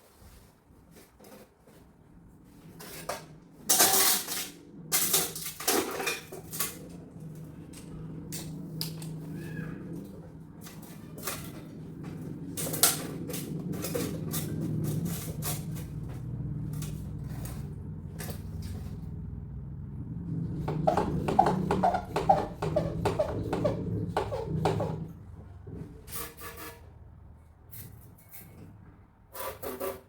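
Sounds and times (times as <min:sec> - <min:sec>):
steady low hum: 0:01.9 - 0:26.1.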